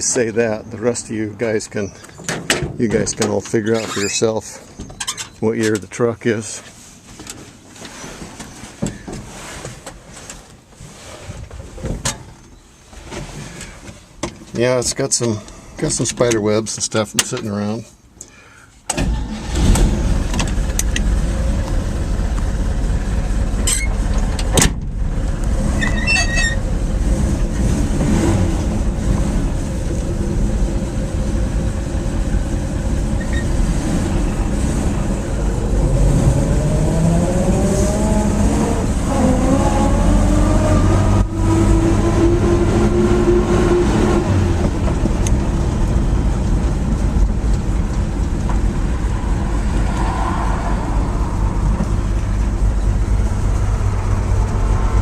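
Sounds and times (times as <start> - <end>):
pickup engine running and revving: 19.7 - 55.0.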